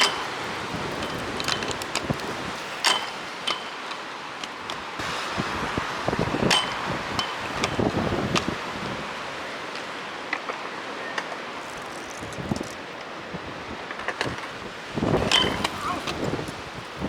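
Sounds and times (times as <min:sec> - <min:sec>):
wind noise: 0:00.0 - 0:03.7, 0:04.6 - 0:09.6, 0:11.5 - 0:17.0.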